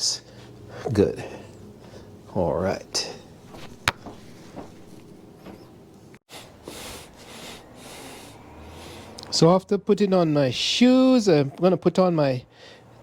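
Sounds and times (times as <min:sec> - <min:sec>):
shoes rustling being put on: 0:03.5 - 0:05.7.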